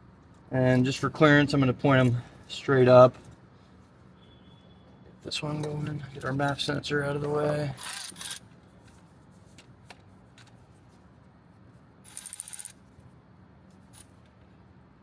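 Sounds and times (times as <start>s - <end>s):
rapid ratchet clicking: 7.8s - 8.4s, 12.1s - 12.8s.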